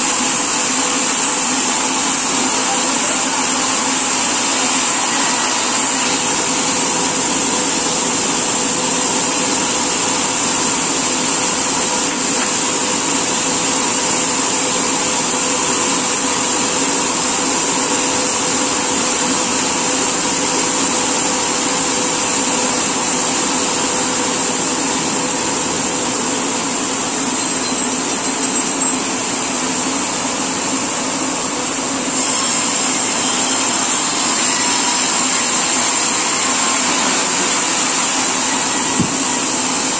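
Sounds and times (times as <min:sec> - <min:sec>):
sawmill saw whining: 0:00.0 - 0:16.7, 0:32.0 - 0:39.9.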